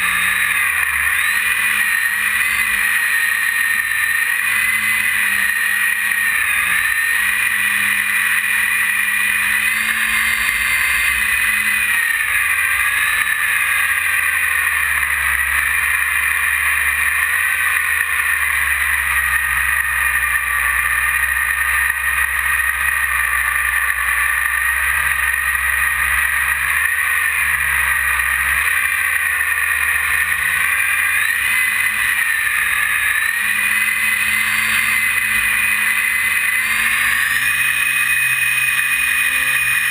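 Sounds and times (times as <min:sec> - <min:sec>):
electric motor and propeller whining: 0:00.0 - 0:39.9.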